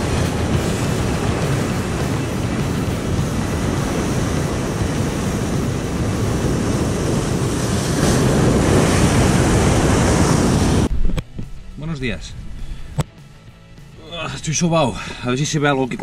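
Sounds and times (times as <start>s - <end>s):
surf washing against rocks: 0.0s - 10.9s
wind buffeting the microphone: 0.0s - 11.6s.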